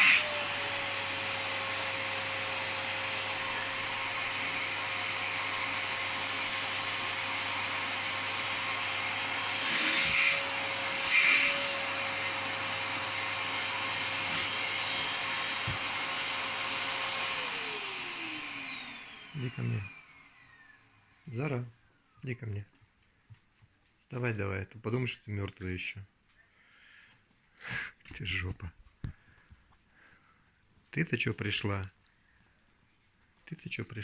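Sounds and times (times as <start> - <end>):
motor winding down: 0.0 - 20.9
vacuum cleaner whining: 0.0 - 21.3.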